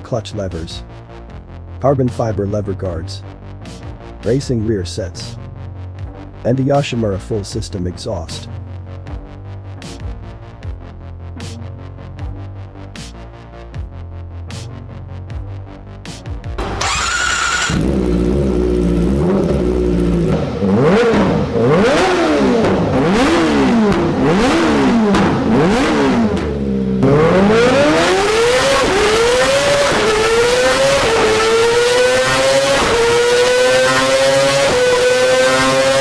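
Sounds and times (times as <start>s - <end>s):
motorcycle engine revving: 16.4s - 36.0s
motorcycle accelerating through gears: 16.6s - 36.0s.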